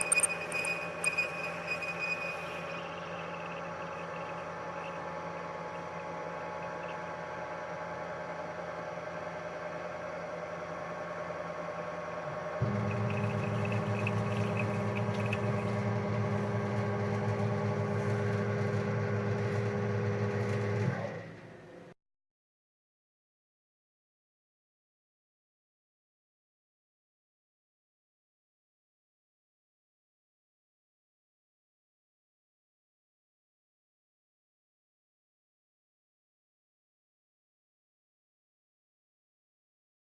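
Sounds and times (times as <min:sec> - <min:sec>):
low motor hum: 0:00.0 - 0:21.9
machine motors running: 0:00.0 - 0:21.9.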